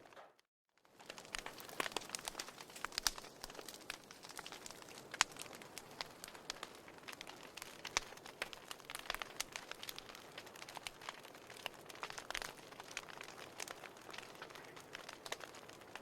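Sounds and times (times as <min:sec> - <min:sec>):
fireplace fire crackling: 0:00.0 - 0:16.0.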